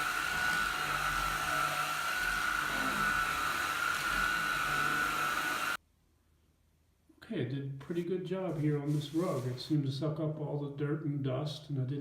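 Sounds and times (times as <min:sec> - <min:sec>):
vacuum cleaner motor whine: 0:00.0 - 0:05.8.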